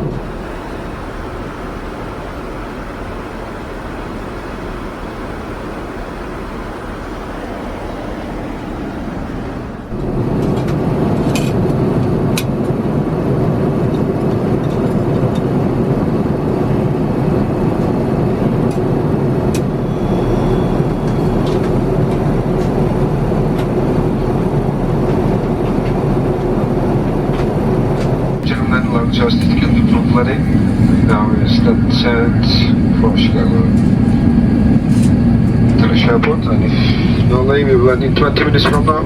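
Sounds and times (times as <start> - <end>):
airliner cabin noise: 0.0 - 13.0, 27.2 - 39.0.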